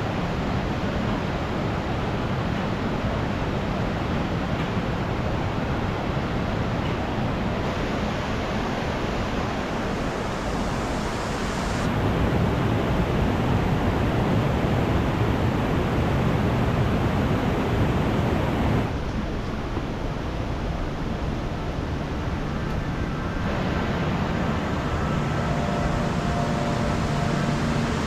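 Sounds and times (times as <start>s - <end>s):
stream water rushing: 23.1s - 28.0s.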